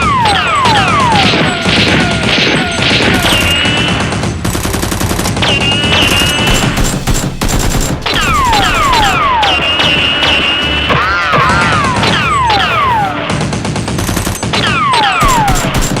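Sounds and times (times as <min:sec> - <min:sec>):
music: 0:00.0 - 0:16.0
rapid gunfire: 0:00.0 - 0:16.0
falling shell whistles: 0:03.0 - 0:04.1, 0:05.4 - 0:07.0, 0:08.1 - 0:10.9.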